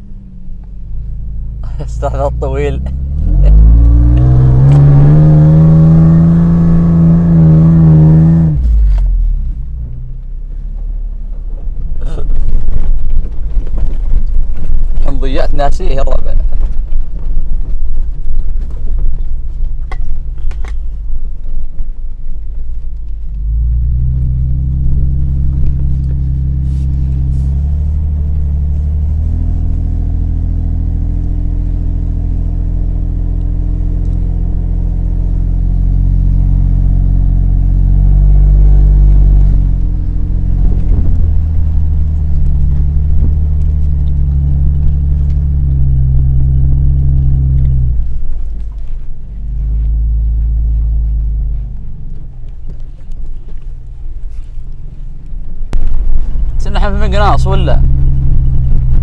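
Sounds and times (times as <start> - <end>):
vehicle engine droning: 0.0 - 59.0
wind buffeting microphone: 37.9 - 49.4, 55.6 - 59.0.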